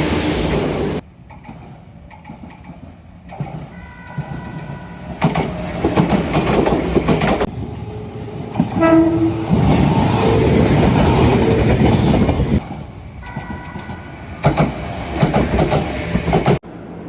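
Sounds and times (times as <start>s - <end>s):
electric train passing: 0.0s - 17.0s
clattering train wheels: 0.4s - 7.5s, 8.5s - 16.6s
train horn blast: 8.7s - 9.6s.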